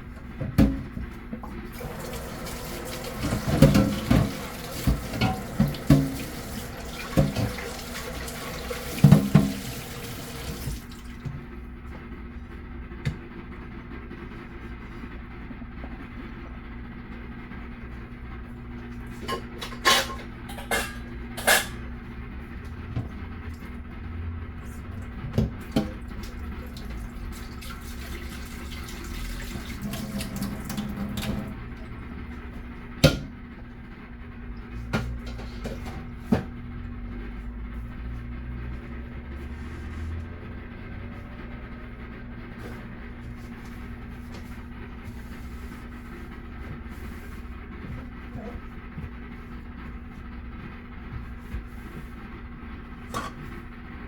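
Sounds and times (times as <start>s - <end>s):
dishes and utensils clinking: 19.2s - 21.8s
steady low hum: 30.4s - 54.0s.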